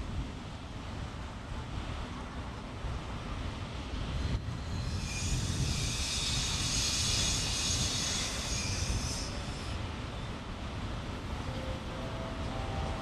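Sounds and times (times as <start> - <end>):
low railway rumble: 0.0 - 13.0
high-pitched hissing whine: 4.3 - 9.9.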